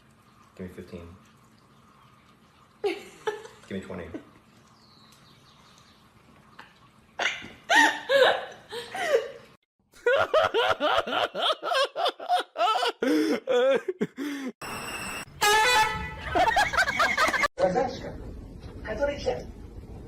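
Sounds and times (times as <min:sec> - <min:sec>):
high-pitched laughing: 0:16.1 - 0:17.5.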